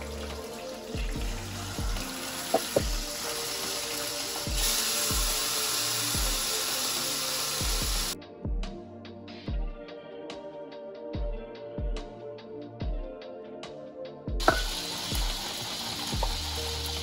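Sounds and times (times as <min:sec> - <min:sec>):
meat sizzling in a frying pan: 0:00.0 - 0:08.2, 0:14.4 - 0:17.0
background music with steady beat: 0:00.0 - 0:17.0.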